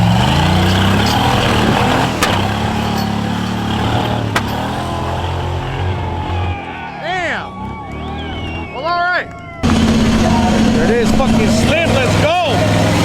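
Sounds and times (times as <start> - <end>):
off-road vehicle engine revving: 0.0 - 13.0
sharp knocks: 0.6 - 2.8, 4.2 - 4.7.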